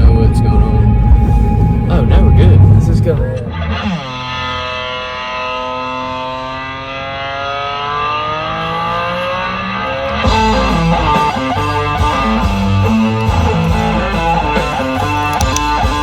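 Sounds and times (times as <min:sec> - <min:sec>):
guitar chord bending upward: 0:00.0 - 0:16.0
band with drums and guitar: 0:10.0 - 0:16.0.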